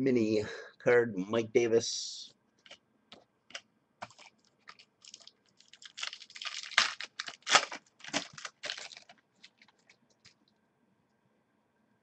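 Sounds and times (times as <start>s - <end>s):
card packaging rustling: 4.0s - 10.4s.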